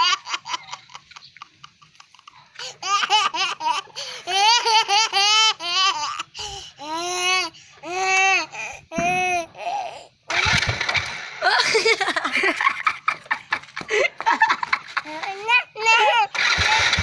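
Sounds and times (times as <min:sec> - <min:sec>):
high-pitched laughter: 0:00.0 - 0:06.6, 0:10.3 - 0:17.0.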